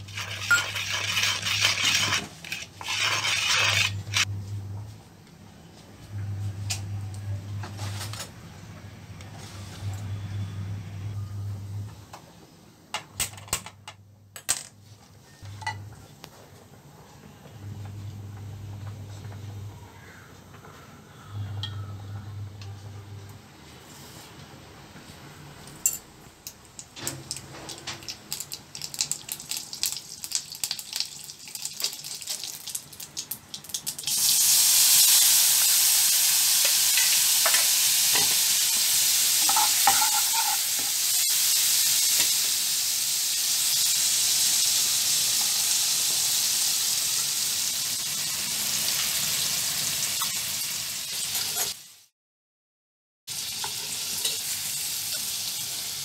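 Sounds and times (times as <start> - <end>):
paste sizzling in hot oil: 0.0 - 4.3, 34.0 - 52.1, 53.3 - 56.0
mustard seeds popping in oil: 28.0 - 34.1.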